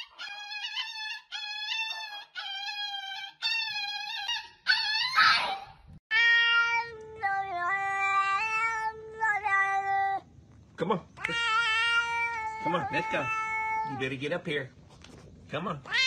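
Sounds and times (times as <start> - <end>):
small dog yelping: 0.0 - 6.7
cat meowing: 5.2 - 10.1, 11.2 - 14.1.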